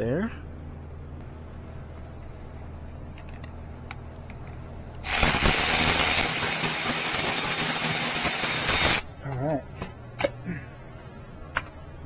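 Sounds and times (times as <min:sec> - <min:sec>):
power ratchet hissing: 0:05.0 - 0:09.1.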